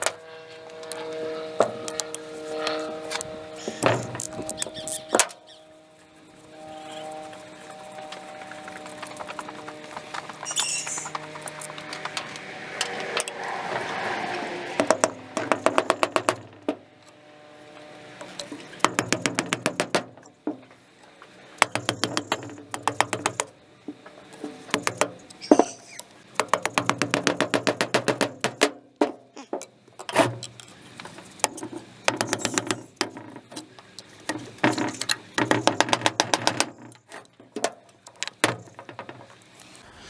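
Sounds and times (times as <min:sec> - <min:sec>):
metal tool knocks: 0:14.8 - 0:16.9, 0:18.8 - 0:20.8, 0:21.6 - 0:24.1, 0:24.7 - 0:25.7, 0:26.4 - 0:30.5, 0:31.4 - 0:39.4.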